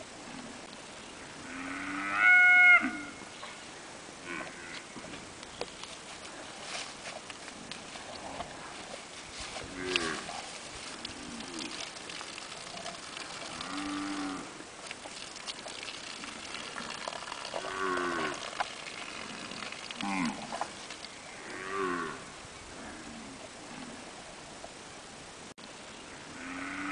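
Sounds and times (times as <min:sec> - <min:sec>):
cattle mooing: 0:09.7 - 0:10.3, 0:13.4 - 0:14.5, 0:17.5 - 0:20.6.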